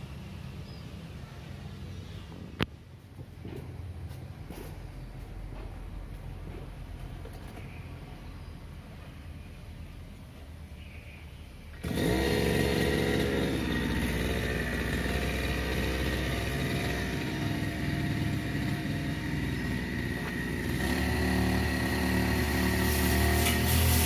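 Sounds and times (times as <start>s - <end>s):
brush cutter engine running: 11.7s - 24.0s.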